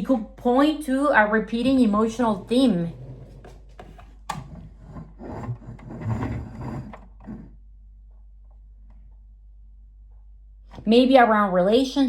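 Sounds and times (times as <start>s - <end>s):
low steady hum: 0.0s - 12.0s
rubbing and scraping: 1.5s - 7.6s.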